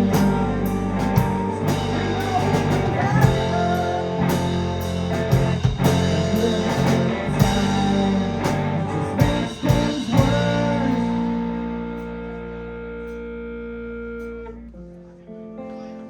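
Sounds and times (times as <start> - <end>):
drum and cymbal hits: 0.0 - 11.2
live rock band playing: 0.0 - 14.9.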